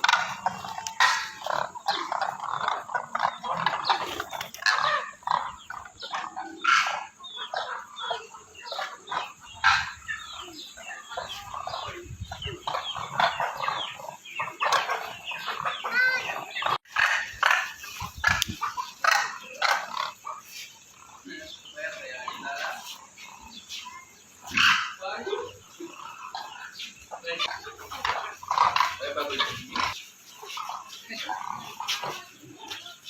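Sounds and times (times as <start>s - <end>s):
flock of cranes calling: 0.0s - 33.0s.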